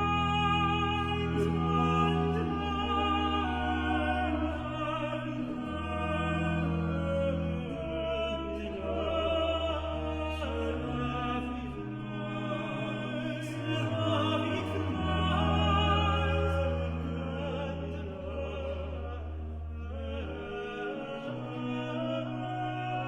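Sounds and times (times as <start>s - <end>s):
countertenor and tenor singing: 0.0s - 23.0s
held continuo bass notes: 0.0s - 23.0s.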